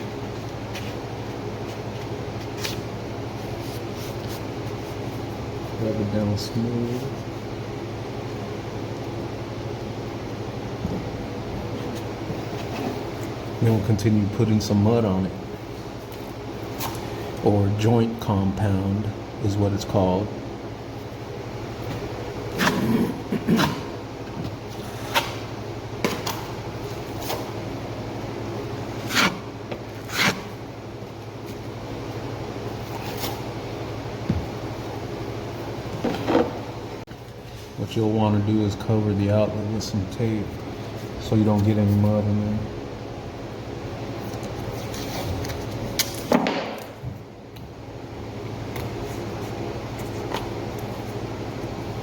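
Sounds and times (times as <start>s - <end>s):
steady low hum: 0.0s - 52.0s
taping knife scraping drywall: 29.0s - 30.6s.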